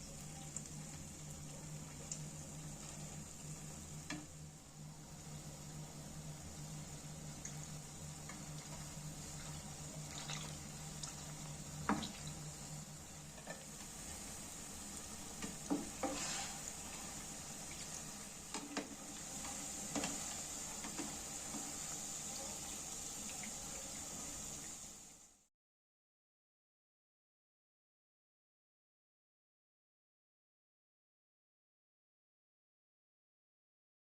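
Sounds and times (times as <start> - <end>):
food deep-frying in oil: 0.0 - 25.5.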